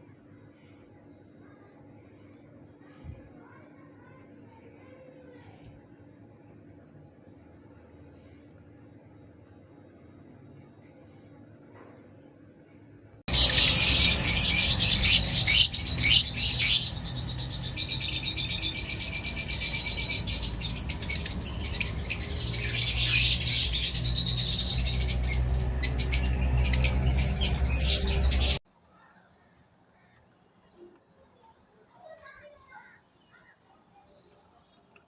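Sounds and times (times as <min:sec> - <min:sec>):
low hum: 0:13.3 - 0:28.6
parrots chattering: 0:13.3 - 0:28.6.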